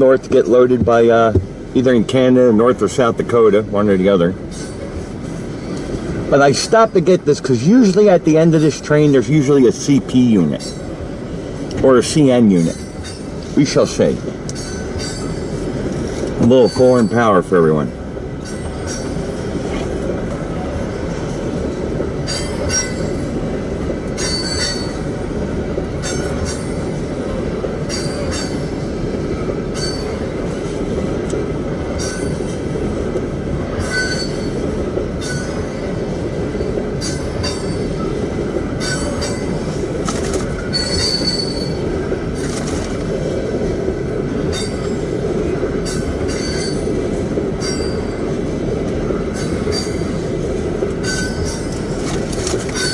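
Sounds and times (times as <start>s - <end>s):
train wheels rumbling on rails: 0.0s - 52.9s
wheels squeaking and clicking: 14.5s - 17.4s, 18.4s - 19.8s, 22.2s - 23.3s, 24.2s - 25.1s, 27.9s - 28.9s, 29.8s - 30.2s, 32.0s - 32.5s, 33.8s - 35.9s, 36.5s - 38.2s, 38.8s - 43.2s, 45.8s - 47.0s, 47.6s - 48.2s, 49.3s - 50.2s, 51.0s - 52.9s.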